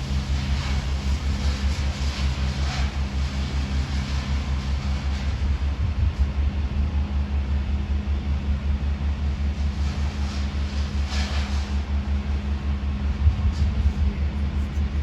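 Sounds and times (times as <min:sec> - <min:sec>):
large engine running steadily: 0:00.0 - 0:15.0.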